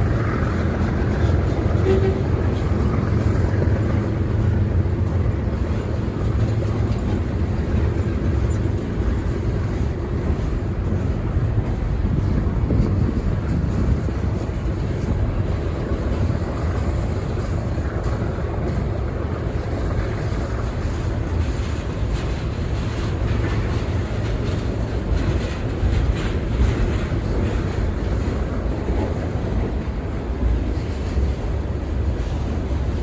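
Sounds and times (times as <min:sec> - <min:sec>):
freight train rumbling past: 0:00.0 - 0:33.0
wind noise on microphone: 0:00.0 - 0:33.0.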